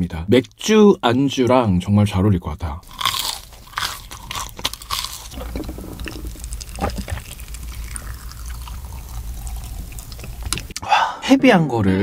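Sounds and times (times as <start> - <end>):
crunching and chewing fried fish: 2.8 - 10.8.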